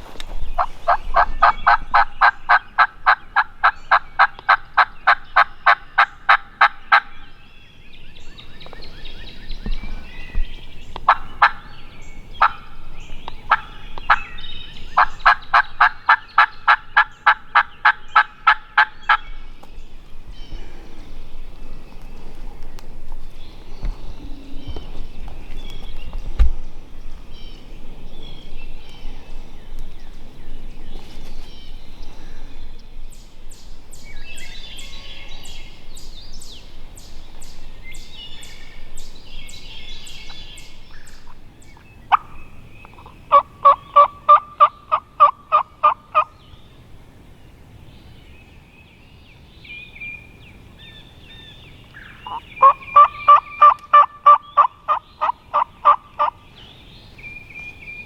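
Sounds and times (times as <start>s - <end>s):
small birds chirping: 0.0s - 58.0s
wild turkey yelping: 0.6s - 7.2s, 11.0s - 11.7s, 12.4s - 12.8s, 13.4s - 19.2s, 42.1s - 46.3s, 52.0s - 56.4s.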